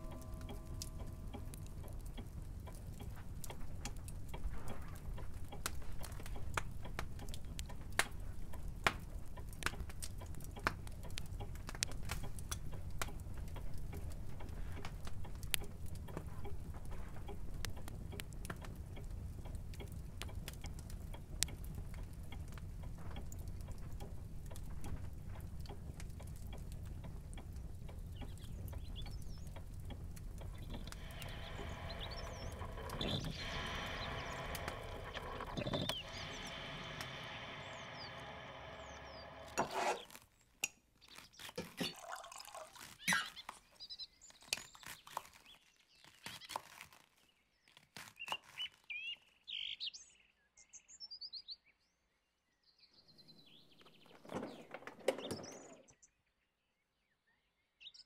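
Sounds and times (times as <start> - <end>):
steady low hum: 0.0 - 7.2, 18.8 - 40.1
clock ticking: 0.0 - 39.6
sharp clicks: 25.6 - 40.1.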